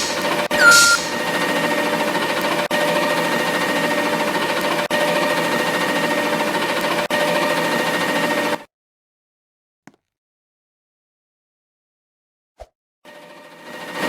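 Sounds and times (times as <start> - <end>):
machinery running with fast rattle: 0.0 - 1.3.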